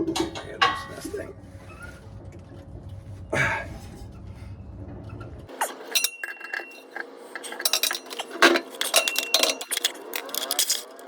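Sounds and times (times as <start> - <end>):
metal clank: 0.0 - 1.8, 5.1 - 10.9
metal tools clinking on steel: 5.6 - 11.0.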